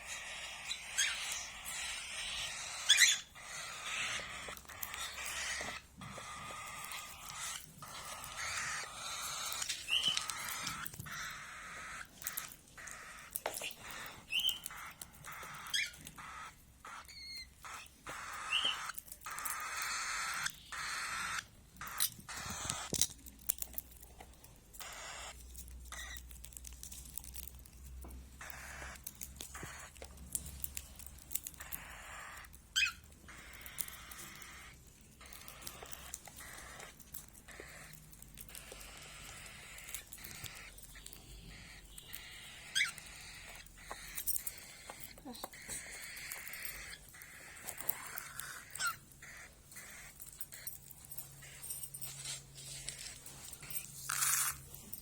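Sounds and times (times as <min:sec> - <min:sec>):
birds chirping: 0:00.0 - 0:55.0
rustling: 0:21.8 - 0:55.0.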